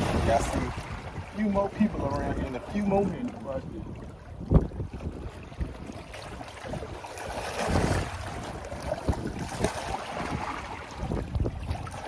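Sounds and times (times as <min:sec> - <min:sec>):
water washing: 0:00.0 - 0:03.8
wind buffeting the microphone: 0:00.0 - 0:12.0.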